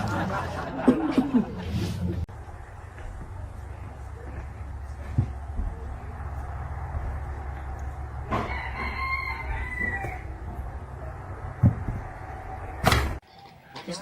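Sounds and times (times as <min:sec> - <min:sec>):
rooster crowing: 0:08.3 - 0:10.5.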